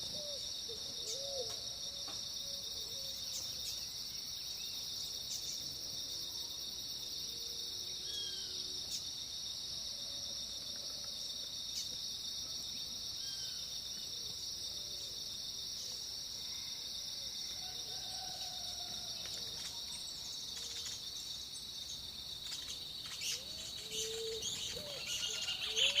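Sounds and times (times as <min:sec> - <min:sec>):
high-pitched insect chorus: 0:00.0 - 0:26.0
bird calls and chirps: 0:19.2 - 0:26.0.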